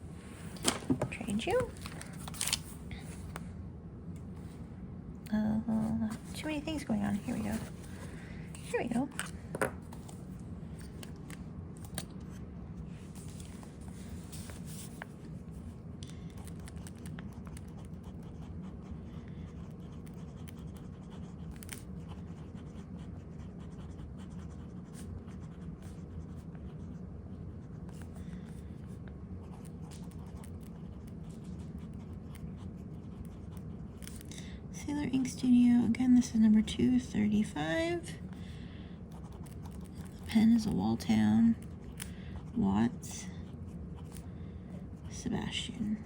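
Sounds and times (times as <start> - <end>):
steady low hum: 0.0 - 46.0
pen nib scratching on paper: 16.1 - 34.3, 39.1 - 45.6.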